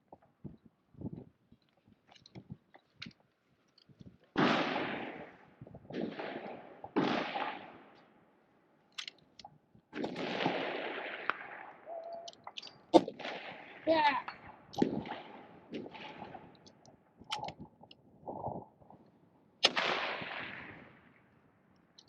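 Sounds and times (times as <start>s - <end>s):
rifle shots echoing: 4.3s - 8.2s, 9.9s - 16.7s, 19.6s - 21.2s
rifle handling clicks: 8.9s - 9.5s, 16.6s - 18.0s.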